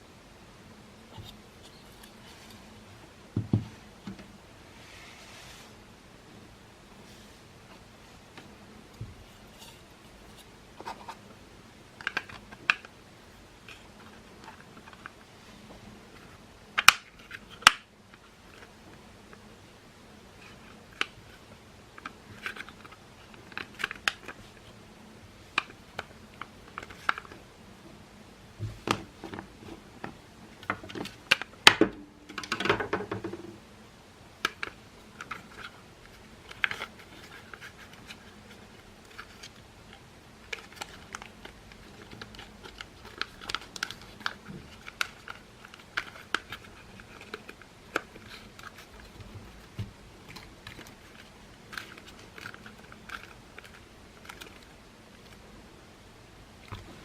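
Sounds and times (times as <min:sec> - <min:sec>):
plastic parts clicking: 0:50.2 - 0:55.4.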